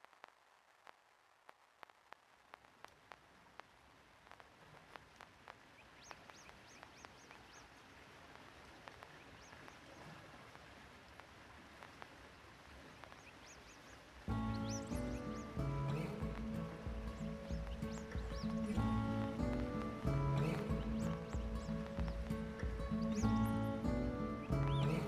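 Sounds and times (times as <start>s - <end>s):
low hiss: 0.0s - 25.0s
faint bird chirps: 5.7s - 7.9s, 12.9s - 25.0s.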